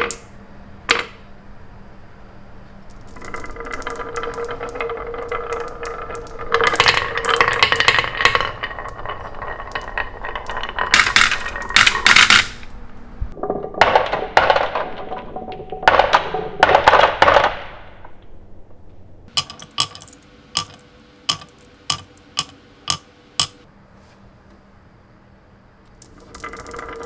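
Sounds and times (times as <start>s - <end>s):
toy pieces rattling and clinking: 2.9s - 12.7s, 19.3s - 23.6s, 26.0s - 27.0s.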